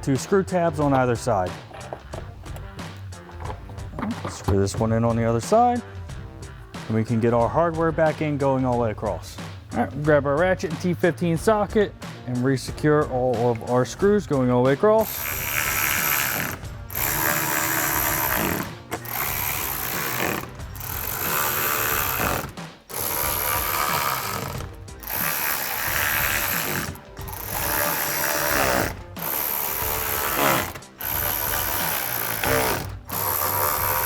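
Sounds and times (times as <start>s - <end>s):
hand ratchet clicking: 15.0s - 34.0s.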